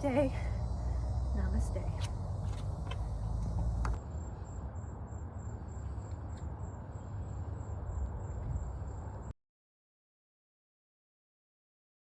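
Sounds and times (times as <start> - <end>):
insect chirping: 0.0 - 9.3
low outdoor rumble: 0.0 - 9.3.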